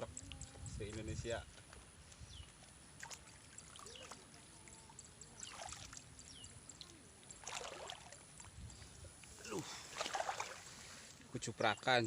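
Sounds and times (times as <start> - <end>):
muddy water sloshing and trickling: 0.0 - 12.0
small water splashes: 1.5 - 11.4.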